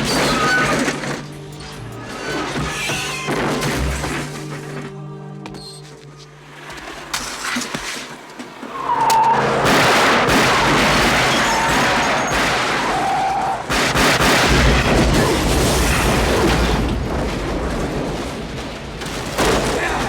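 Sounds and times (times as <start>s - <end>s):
tyre screeches: 2.0s - 4.1s, 6.8s - 9.5s
engine and crash effects: 8.5s - 19.7s.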